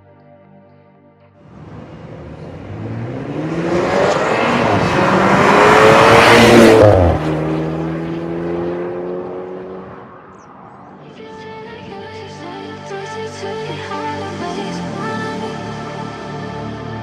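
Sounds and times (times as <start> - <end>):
car engine accelerating: 1.5 - 11.0.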